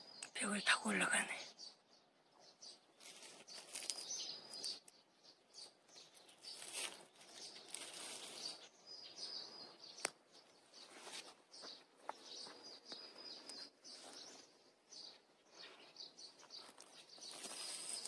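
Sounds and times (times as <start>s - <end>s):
small birds chirping: 0.0s - 18.0s
soft rustle: 2.9s - 4.8s, 6.1s - 8.7s, 10.7s - 18.0s.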